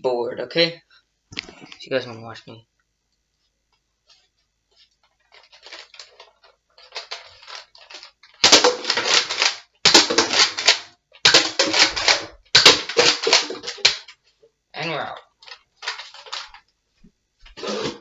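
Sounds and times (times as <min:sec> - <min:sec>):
dart blaster firing clacks: 0:08.4 - 0:14.1.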